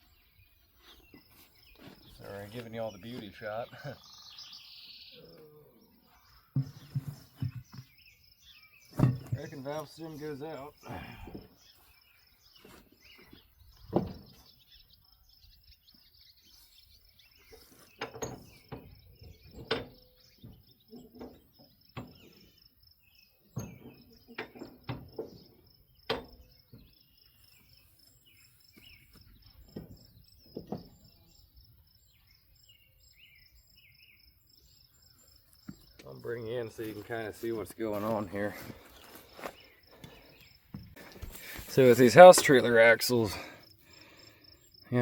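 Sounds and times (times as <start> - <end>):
birds chirping: 0.0 - 45.0
knocks and clunks on trailer wheel: 6.6 - 7.9, 8.9 - 9.6.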